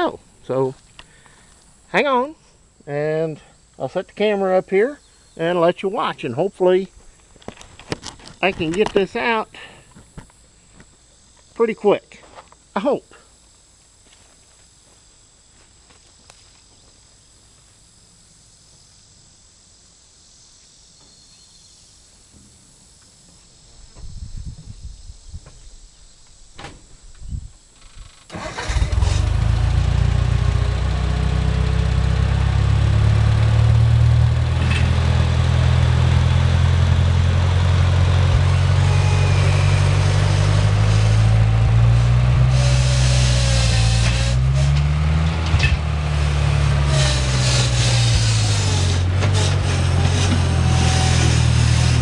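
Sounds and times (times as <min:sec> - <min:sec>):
skid steer engine starting and running: 0:27.9 - 0:52.0.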